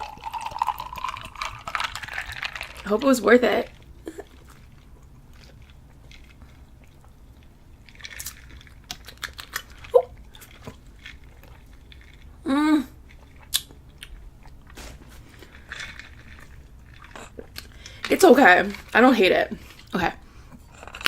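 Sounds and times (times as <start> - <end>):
mouth and swallowing clicks: 13.1 - 15.0.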